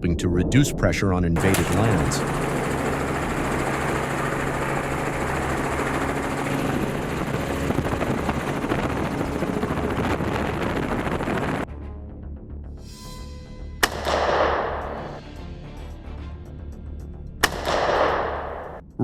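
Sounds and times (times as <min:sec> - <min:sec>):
helicopter rotor and engine: 0:01.4 - 0:11.7.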